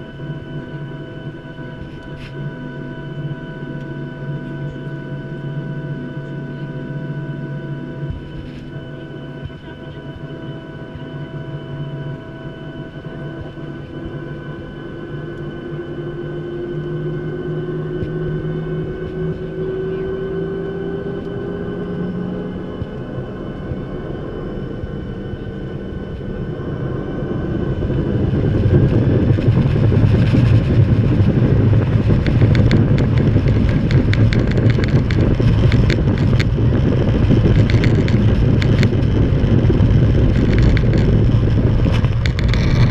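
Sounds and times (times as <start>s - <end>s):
jet engines whining and rumbling: 0.0s - 42.9s
rattling and bumping from runway: 17.8s - 42.9s.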